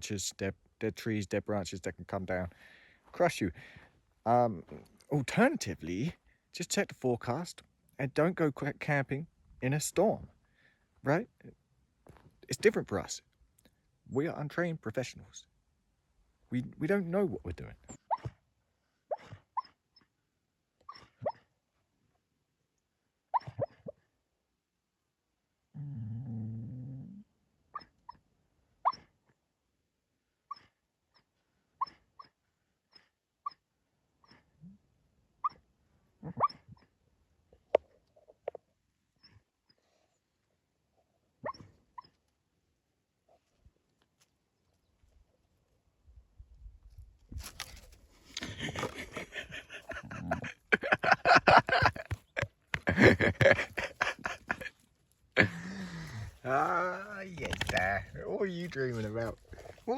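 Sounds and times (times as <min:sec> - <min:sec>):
dog yipping and whimpering: 0:17.9 - 0:18.4, 0:19.1 - 0:19.8, 0:20.9 - 0:21.5, 0:23.3 - 0:23.9, 0:28.8 - 0:29.1, 0:30.5 - 0:30.8, 0:31.8 - 0:33.6, 0:36.2 - 0:36.9, 0:41.4 - 0:42.2
dog growling: 0:25.8 - 0:27.2, 0:48.5 - 0:52.2, 0:58.0 - 0:59.9.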